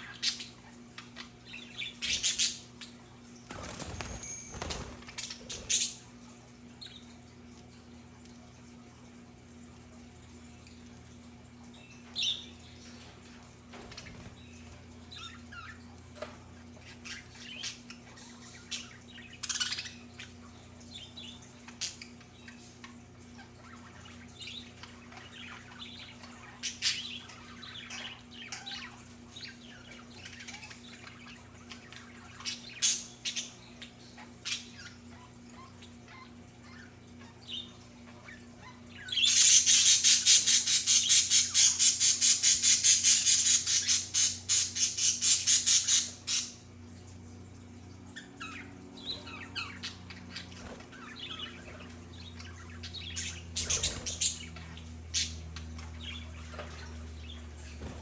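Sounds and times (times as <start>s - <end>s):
budgerigars chirping and warbling: 0.0s - 7.9s, 10.7s - 47.0s, 47.6s - 58.0s.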